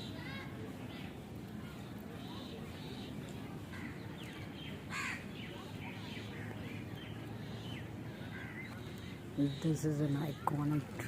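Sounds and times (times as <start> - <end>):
distant bird calls: 0.0 - 11.0
crow cawing: 4.9 - 5.2.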